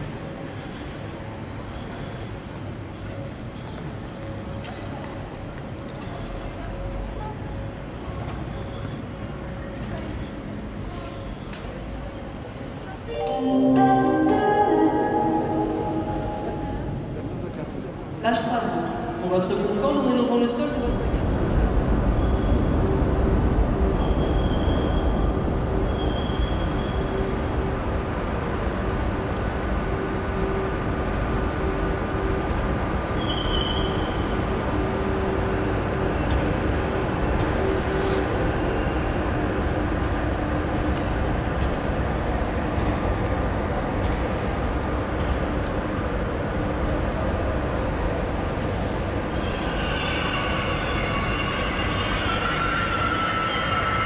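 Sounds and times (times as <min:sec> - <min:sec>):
train rumbling and humming: 0:00.0 - 0:54.0
high-pitched squeals: 0:49.4 - 0:54.0.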